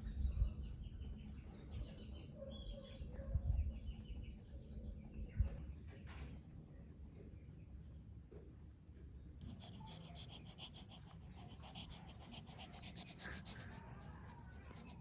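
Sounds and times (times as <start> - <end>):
small birds chirping: 9.4 - 15.0.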